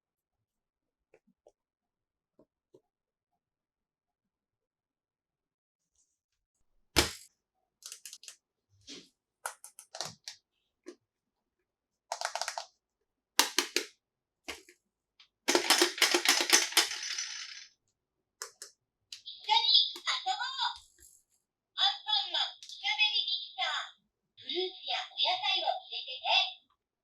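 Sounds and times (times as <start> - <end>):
plastic toy pieces clacking: 12.1 - 12.7, 13.4 - 13.9, 15.5 - 17.7
plastic toy pieces rattling: 15.5 - 17.7.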